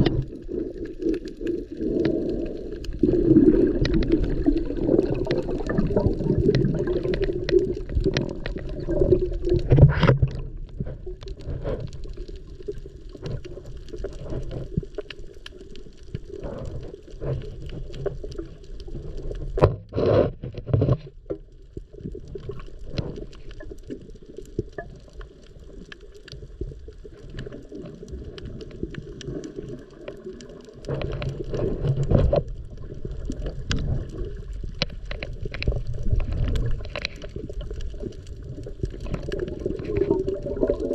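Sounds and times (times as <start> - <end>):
underwater bursts: 0.0 - 10.6, 38.5 - 40.9
muffled underwater water noise: 0.0 - 40.9
underwater clicks: 0.0 - 40.9.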